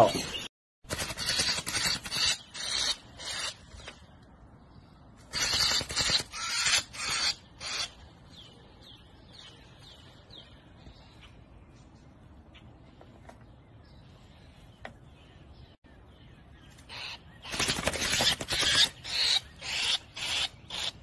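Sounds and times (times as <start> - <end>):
bird squawking harshly: 1.0 - 3.7, 5.3 - 8.0, 16.9 - 21.0.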